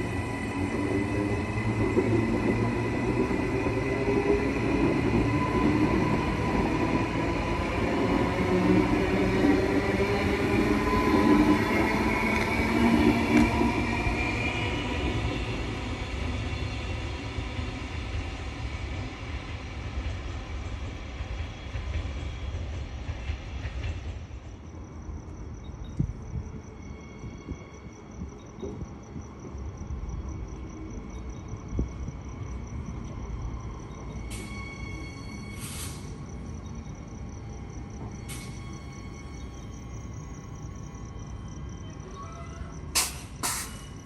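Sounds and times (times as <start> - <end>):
electric train whining: 0.0 - 44.0
insects chirping trill: 0.0 - 44.0
train wheels rumbling: 0.0 - 44.0.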